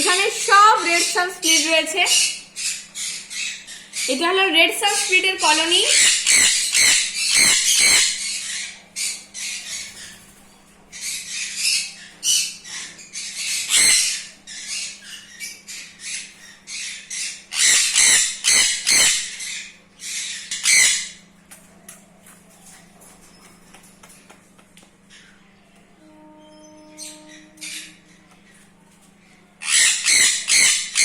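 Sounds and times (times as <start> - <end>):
parrots screeching: 0.0 - 4.2, 4.9 - 21.3, 26.4 - 28.4, 29.6 - 31.0
faint steady hum: 0.0 - 31.0.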